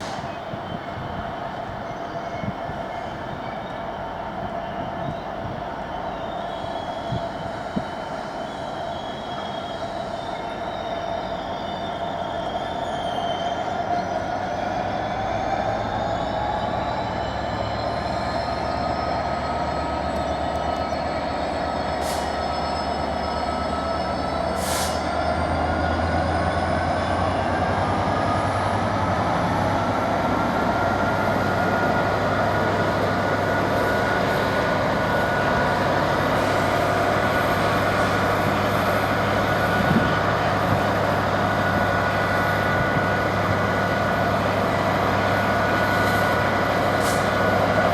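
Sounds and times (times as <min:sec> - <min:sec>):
diesel locomotive engines droning: 0:00.0 - 0:47.9.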